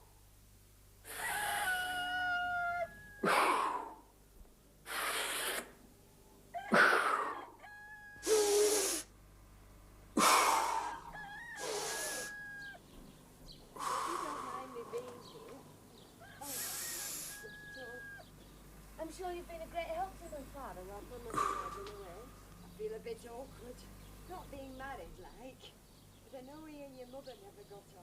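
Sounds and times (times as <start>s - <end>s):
hens clucking: 10.8s - 12.8s, 14.2s - 18.3s.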